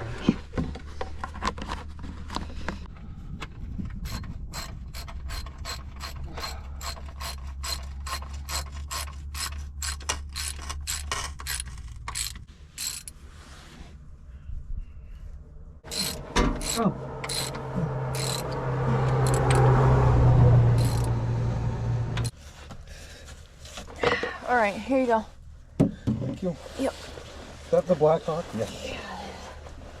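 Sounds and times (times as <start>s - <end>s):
ratchet wrench clicking: 4.0s - 13.2s, 15.9s - 19.6s, 20.8s - 21.1s.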